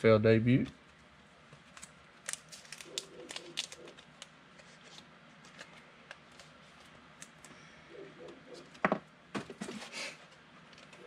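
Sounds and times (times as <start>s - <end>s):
cards clicking and slapping: 1.7s - 4.3s.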